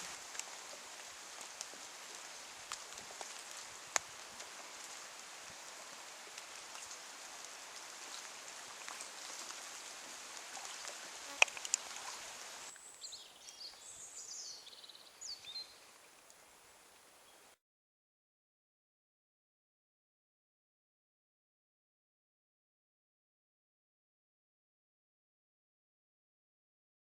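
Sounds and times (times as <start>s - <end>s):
background hiss: 0.0s - 17.6s
faint ticks: 10.3s - 11.9s.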